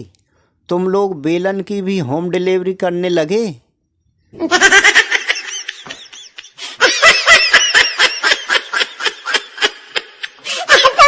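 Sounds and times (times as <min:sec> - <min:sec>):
high-pitched laughter: 0:04.4 - 0:11.0.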